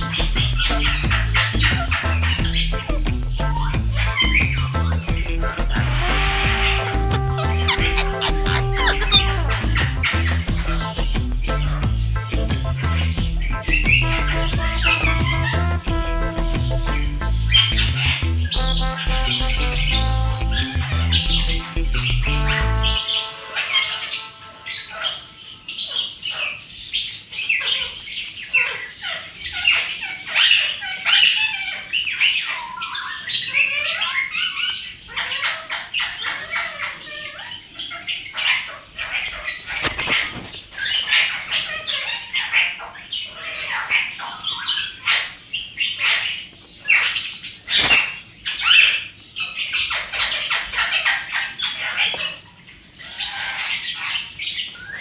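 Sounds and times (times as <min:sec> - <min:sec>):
parrot squawking: 0:00.0 - 0:55.0.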